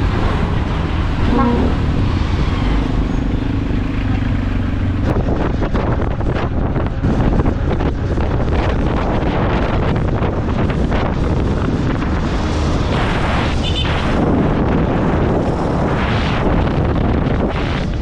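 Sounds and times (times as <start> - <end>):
motorcycle engine and road noise: 0.0 - 18.0
wind buffeting microphone: 0.0 - 18.0.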